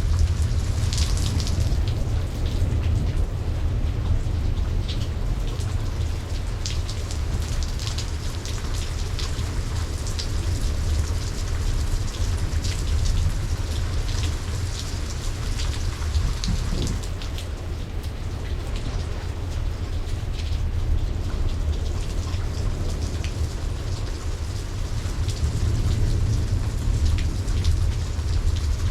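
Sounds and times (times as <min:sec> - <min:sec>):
low rumble: 0:00.0 - 0:07.4, 0:20.5 - 0:28.9
heavy rain: 0:00.0 - 0:28.9
raindrops spattering close by: 0:00.0 - 0:28.9.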